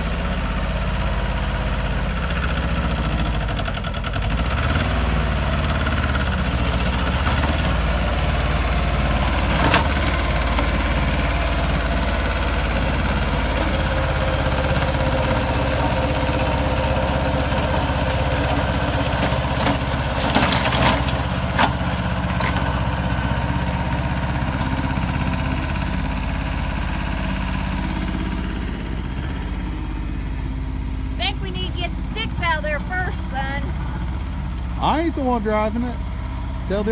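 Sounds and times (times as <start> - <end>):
tractor diesel engine running: 0.0 - 36.9.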